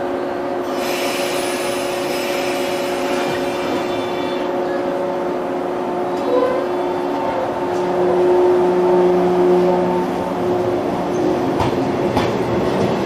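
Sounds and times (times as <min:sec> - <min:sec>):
electric train humming: 0:00.0 - 0:13.0
hiss: 0:00.7 - 0:04.2.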